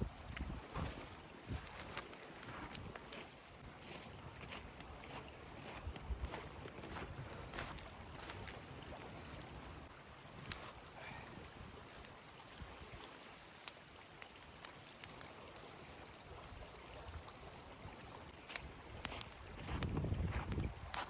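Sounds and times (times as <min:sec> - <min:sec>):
stream running: 0:00.0 - 0:21.0.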